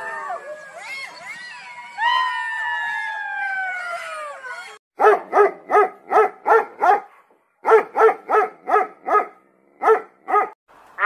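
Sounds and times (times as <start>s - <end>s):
dog barking rapidly: 5.0s - 10.6s.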